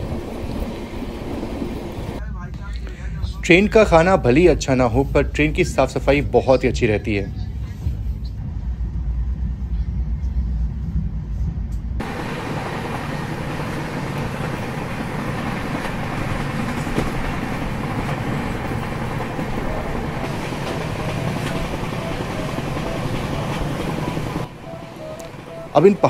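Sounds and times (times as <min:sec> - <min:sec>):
wheels rushing on track: 0:00.0 - 0:02.2, 0:12.0 - 0:26.0
deep low rumble in train coach: 0:00.0 - 0:26.0.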